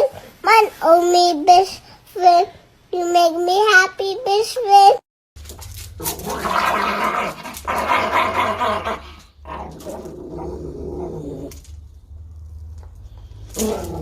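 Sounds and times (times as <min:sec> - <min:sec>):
dog growling: 0:06.0 - 0:14.0.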